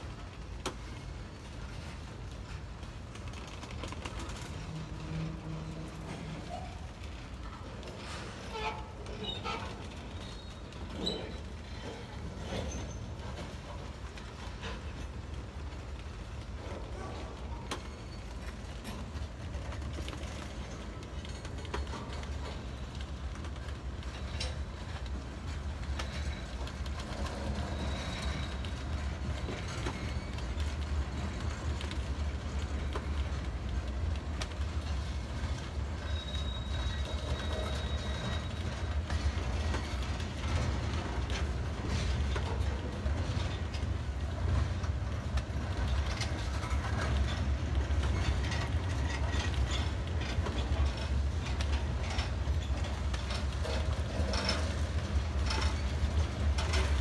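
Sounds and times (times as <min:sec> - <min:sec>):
freight train rumbling past: 0:00.0 - 0:57.0
wheels and couplings clanking: 0:00.1 - 0:57.0
high wheel squeal: 0:36.0 - 0:38.6.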